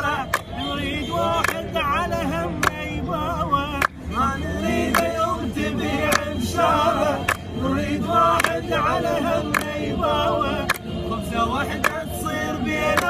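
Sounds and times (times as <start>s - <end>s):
clap-like beats: 0.0s - 2.9s, 3.6s - 4.1s, 4.8s - 5.3s, 6.0s - 6.4s, 7.0s - 7.5s, 8.2s - 9.9s, 10.6s - 11.0s, 11.6s - 13.0s
young man singing: 0.0s - 13.0s.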